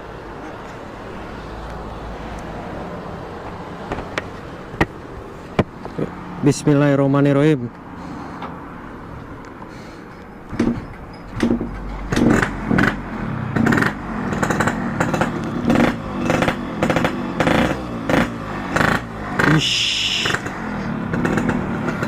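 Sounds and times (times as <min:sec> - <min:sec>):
two-stroke motorcycle engine revving: 0:11.4 - 0:22.0.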